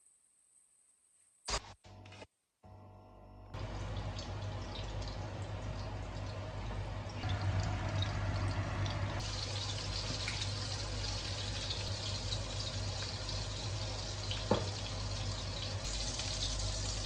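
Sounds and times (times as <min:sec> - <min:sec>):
water running from a tap: 0:03.6 - 0:17.0.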